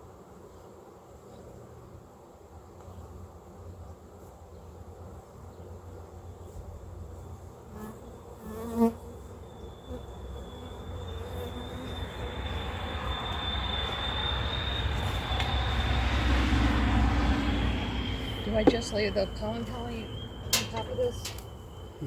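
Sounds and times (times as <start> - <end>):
bee passing close by: 7.6 - 12.8
honeybees buzzing: 7.6 - 12.8
steady high whine: 9.3 - 22.0.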